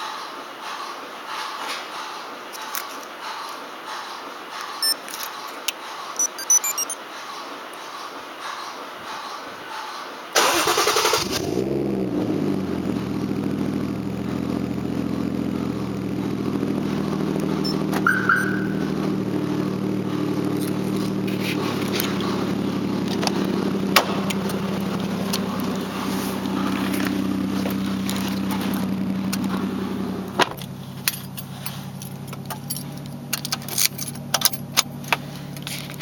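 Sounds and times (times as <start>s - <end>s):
short high beep: 6.2s - 7.0s, 17.6s - 18.9s
car engine starting and idling: 10.3s - 36.0s.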